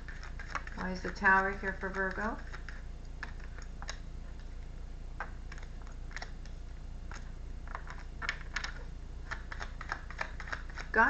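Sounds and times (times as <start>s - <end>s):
steady low hum: 0.0s - 11.0s
cards clicking and snapping: 5.2s - 10.9s.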